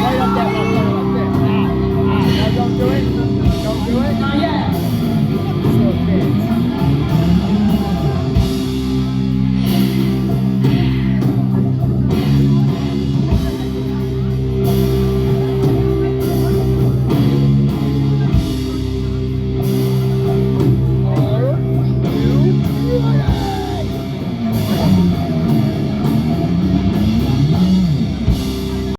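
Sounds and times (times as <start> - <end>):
drums: 0.0 - 28.9
electric guitar chords: 0.0 - 28.9.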